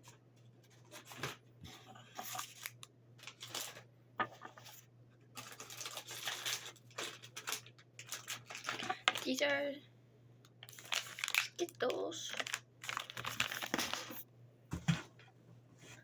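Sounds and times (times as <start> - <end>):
plastic wrapper crinkling and tearing: 2.2 - 3.8, 5.4 - 9.5, 10.5 - 14.2.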